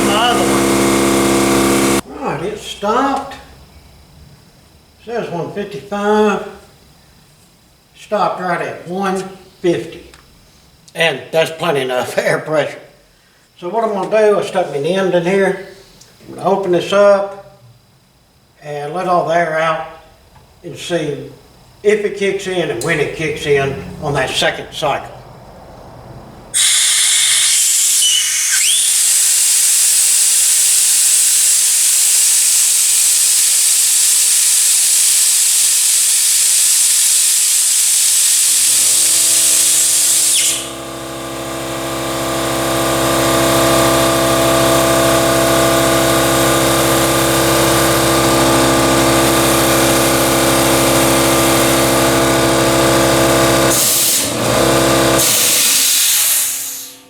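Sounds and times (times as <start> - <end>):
air compressor motor running: 0.0 - 2.6, 26.5 - 57.0
compressed air hissing from valve: 26.6 - 40.7, 55.2 - 57.0.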